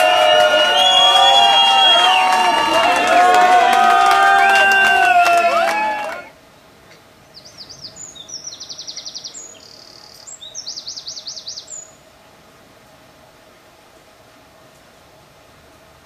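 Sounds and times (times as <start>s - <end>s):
bird song chirps and trills: 7.2s - 12.0s.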